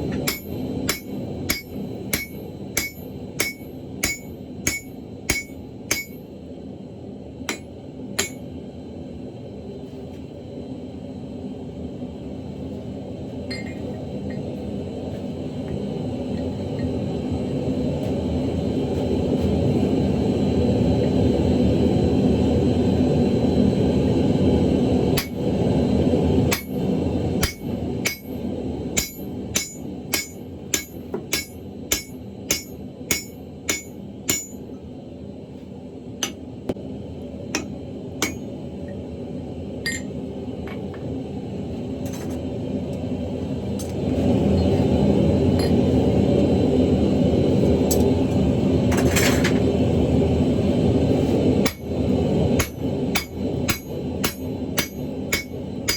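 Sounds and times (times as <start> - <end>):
hammer ringing on anvil: 0.2 - 6.2, 7.5 - 8.5, 27.4 - 28.4, 29.0 - 34.7, 38.2 - 38.4, 52.6 - 55.9.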